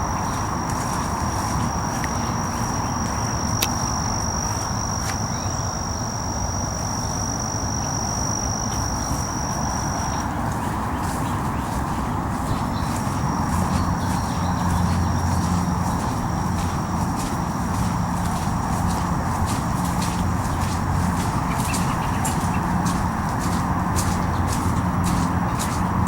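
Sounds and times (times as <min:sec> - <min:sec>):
constant low rumble: 0:00.0 - 0:26.0
insect trilling: 0:00.0 - 0:26.0.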